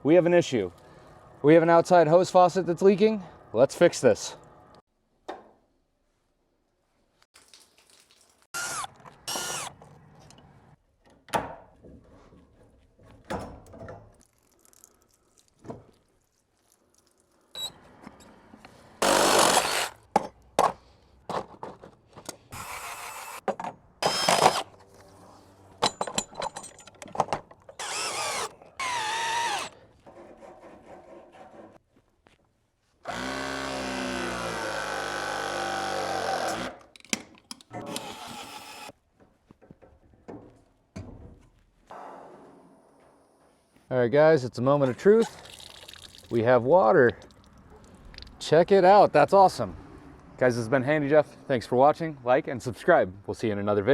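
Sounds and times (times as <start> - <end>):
power tool running: 8.6 - 9.7, 19.0 - 19.9, 24.0 - 24.8, 27.8 - 29.8, 33.1 - 36.7, 37.8 - 38.9.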